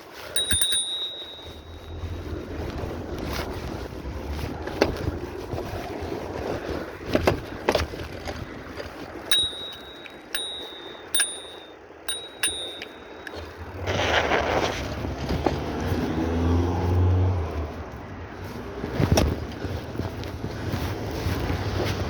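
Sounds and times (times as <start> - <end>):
small bell dinging: 0.3 - 2.3, 9.3 - 13.7.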